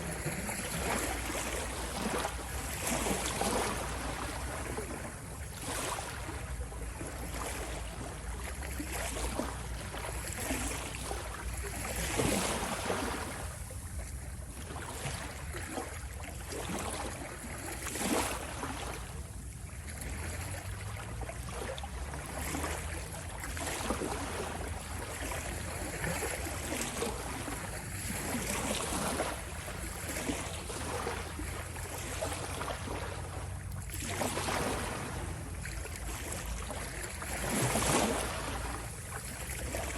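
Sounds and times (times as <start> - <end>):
ocean waves washing in: 20.0 - 39.9
rush of surf: 33.9 - 39.9.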